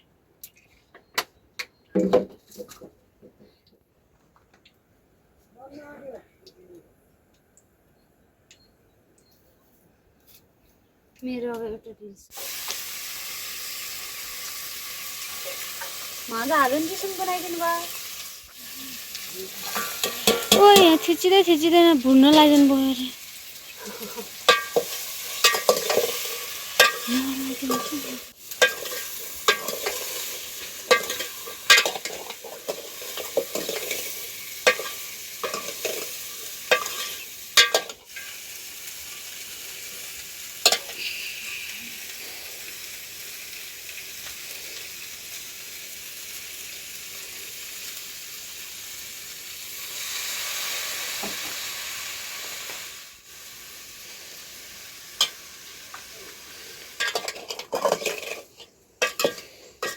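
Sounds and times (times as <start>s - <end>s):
food sizzling: 12.3s - 59.9s
utensil scraping a pan: 19.5s - 20.6s, 23.8s - 38.0s, 57.0s - 59.9s.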